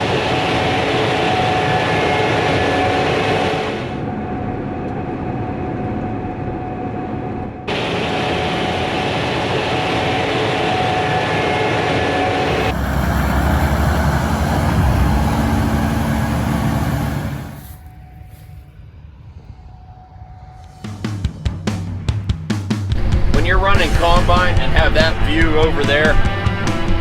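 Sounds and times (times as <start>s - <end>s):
combine harvester running: 7.7s - 18.4s.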